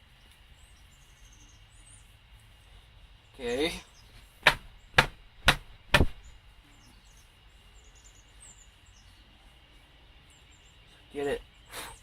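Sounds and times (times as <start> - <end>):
sharp knocks on hard surface: 4.4 - 6.2.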